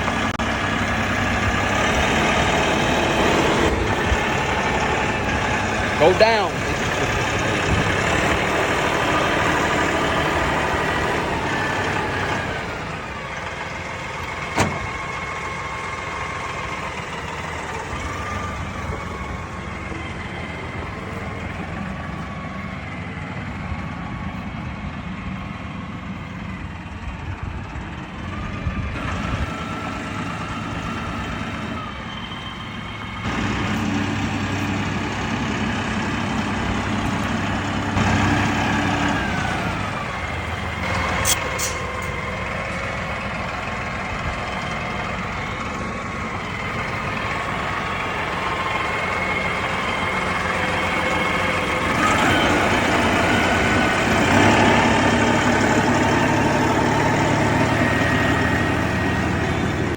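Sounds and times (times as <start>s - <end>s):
tractor engine running: 0.0s - 59.9s
sharp click: 40.9s - 42.2s.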